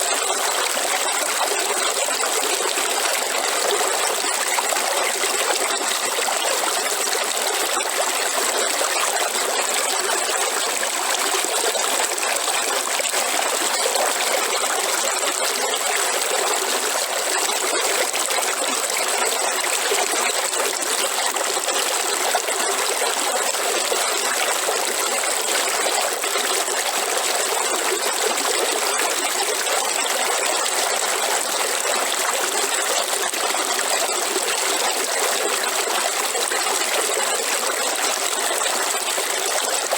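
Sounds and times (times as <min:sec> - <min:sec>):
river water flowing: 0:00.0 - 0:25.9.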